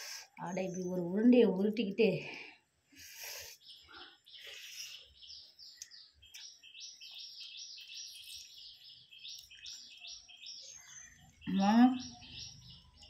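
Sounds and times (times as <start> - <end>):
bird chirping: 2.9 - 13.0.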